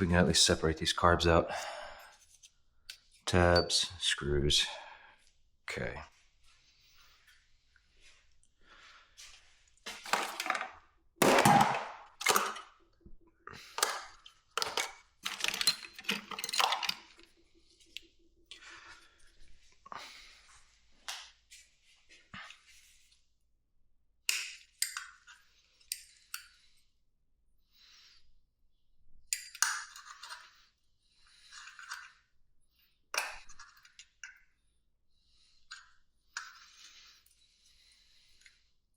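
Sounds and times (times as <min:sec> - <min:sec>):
metal tools clinking and knocking: 0:03.3 - 0:04.0, 0:10.1 - 0:12.7, 0:14.6 - 0:17.3
metal parts scraping: 0:10.1 - 0:12.6, 0:14.6 - 0:17.2
metallic clanks and clatters: 0:10.1 - 0:12.6, 0:14.6 - 0:17.2.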